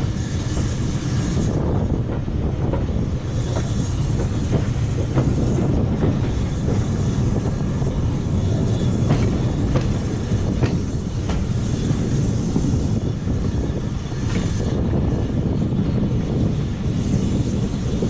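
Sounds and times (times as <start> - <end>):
train rumbling along track: 0.0 - 18.0
wheels clicking over rail joints: 2.1 - 12.1.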